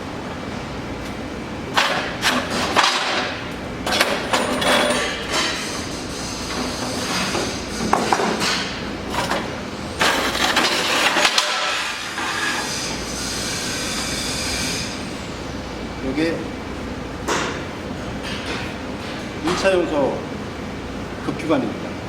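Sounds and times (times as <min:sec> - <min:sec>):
steel parts clanking: 0:03.9 - 0:15.0
metal scraping: 0:04.5 - 0:15.2.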